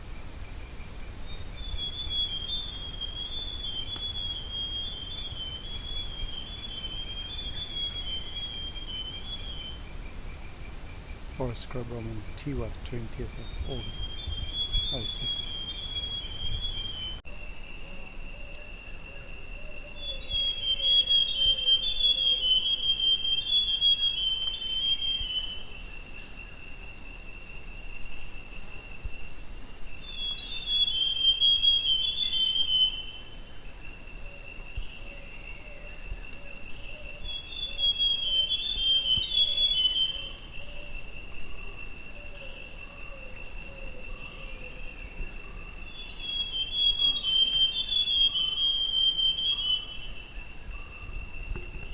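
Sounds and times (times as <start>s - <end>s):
high insect drone: 0.0s - 51.9s
bird singing warbled phrases: 11.4s - 17.2s.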